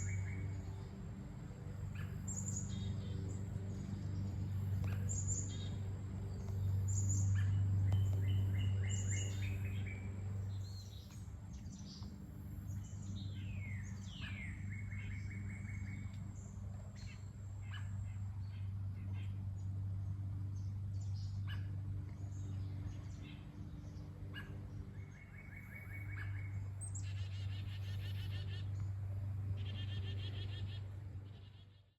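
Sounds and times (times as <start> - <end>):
songbirds chirping and trilling: 0.0 - 31.9
steady low hum: 0.0 - 31.9.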